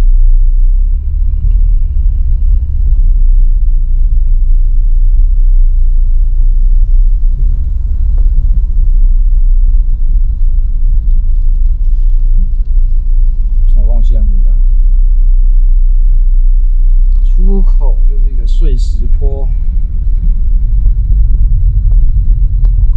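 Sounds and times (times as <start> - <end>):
loud low rumble: 0.0 - 22.9.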